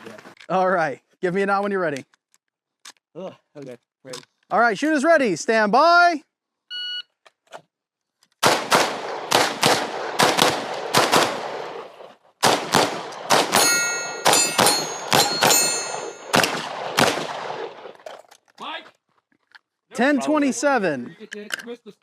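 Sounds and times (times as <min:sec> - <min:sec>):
handgun shots: 0:08.4 - 0:11.7, 0:12.4 - 0:17.8
steel targets ringing: 0:13.4 - 0:16.5.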